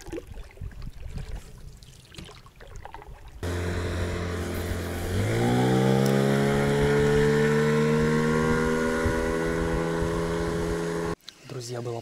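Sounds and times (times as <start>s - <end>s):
faint water: 0.0s - 3.4s
engine running: 3.4s - 11.2s.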